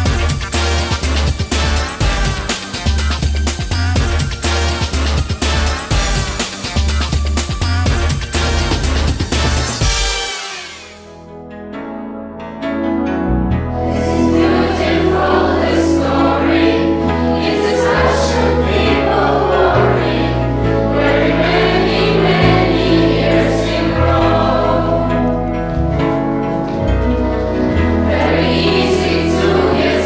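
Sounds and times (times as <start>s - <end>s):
sustained bass notes: 0.0s - 30.0s
choir singing: 13.7s - 26.4s, 27.0s - 30.0s.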